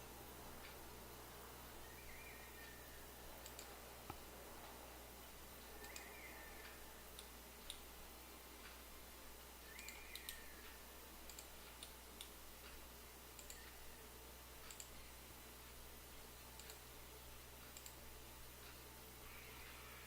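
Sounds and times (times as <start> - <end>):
faint electrical hum: 0.0 - 20.0
computer mouse clicking: 2.1 - 8.0, 9.7 - 13.9, 14.6 - 15.0, 16.6 - 17.0, 17.6 - 18.0.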